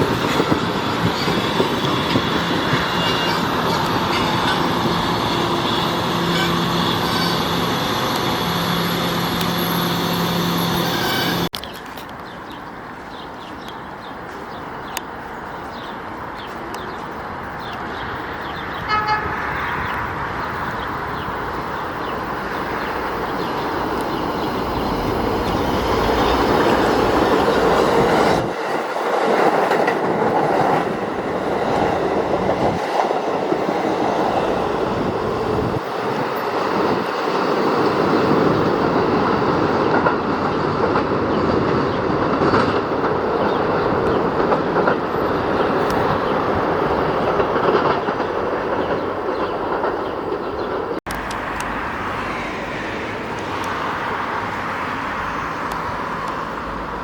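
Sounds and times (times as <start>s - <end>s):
train wheels rumbling on rails: 0.0s - 57.0s
train horn: 2.7s - 9.6s, 10.4s - 11.5s, 18.8s - 19.6s.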